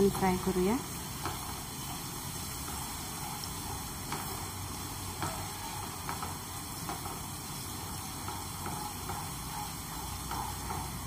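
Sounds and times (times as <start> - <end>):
chillies sizzling in hot oil: 0.0 - 11.0
wooden spatula scraping and tapping: 2.6 - 11.0.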